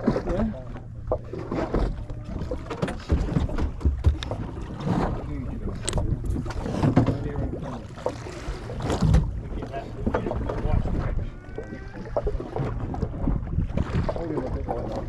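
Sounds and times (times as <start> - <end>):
boat engine hum: 0.0 - 15.0
knocks and clatters: 1.1 - 4.5
wind on microphone: 1.4 - 15.0.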